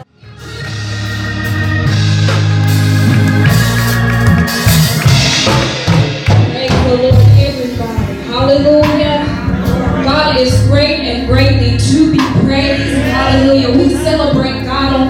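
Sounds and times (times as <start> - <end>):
organ chords: 0.0 - 15.0
drum and cymbal hits: 0.4 - 10.8.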